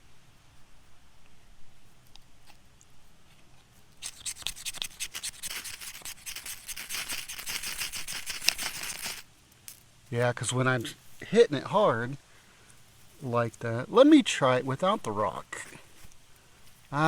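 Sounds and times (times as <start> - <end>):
ferro rod scraping: 4.0 - 9.2.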